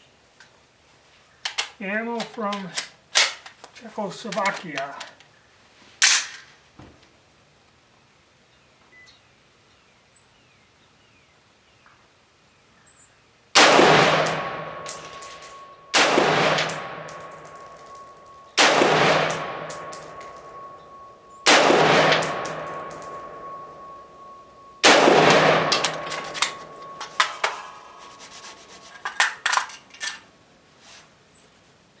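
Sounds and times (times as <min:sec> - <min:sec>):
rifle shots echoing: 0:13.6 - 0:28.0
metallic clinks: 0:14.1 - 0:30.2.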